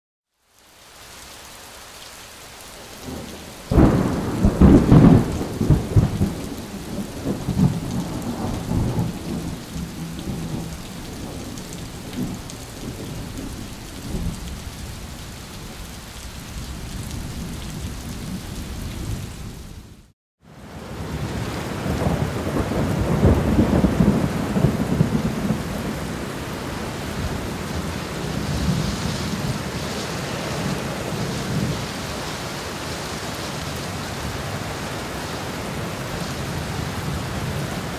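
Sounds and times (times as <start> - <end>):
steady rain: 0.3 - 37.9
thunder rumbling: 3.0 - 14.6, 21.0 - 32.0.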